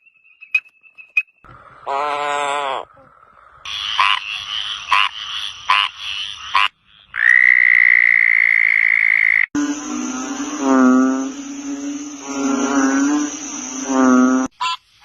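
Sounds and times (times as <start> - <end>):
frog croaks: 1.8 - 14.8
lower-pitched frog call: 1.8 - 14.8
frog high-pitched trill: 3.7 - 14.8.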